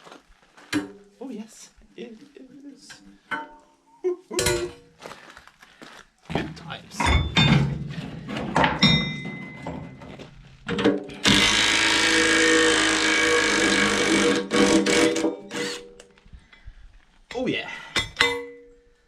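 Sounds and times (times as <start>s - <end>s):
ringing metal strike: 8.8s - 9.9s
metal tools clinking: 8.8s - 10.1s
power tool running: 11.2s - 15.8s.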